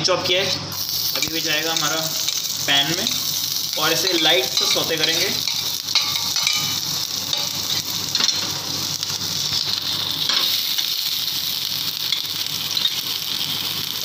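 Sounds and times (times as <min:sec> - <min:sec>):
garlic sizzling in hot oil: 0:00.6 - 0:14.0
metal spoon clicking against pan: 0:04.1 - 0:08.4.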